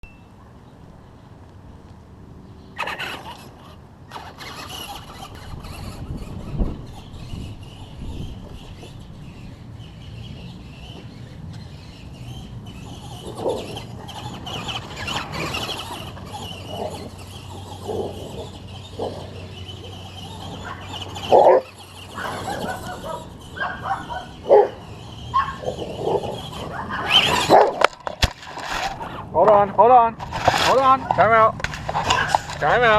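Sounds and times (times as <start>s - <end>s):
electric motor whine: 2.8s - 29.4s
dogs barking: 17.8s - 27.9s.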